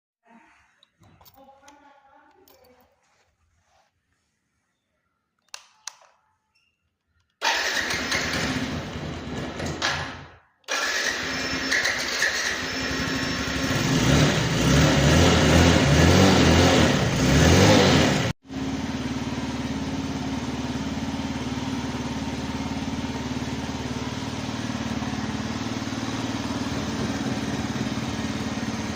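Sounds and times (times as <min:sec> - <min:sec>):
motorcycle engine starting and idling: 0:07.4 - 0:28.9.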